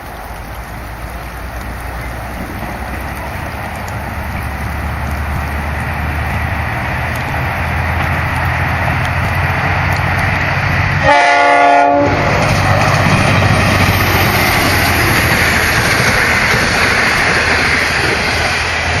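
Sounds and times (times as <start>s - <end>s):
train passing: 0.0s - 19.0s
train horn blast: 10.8s - 12.7s.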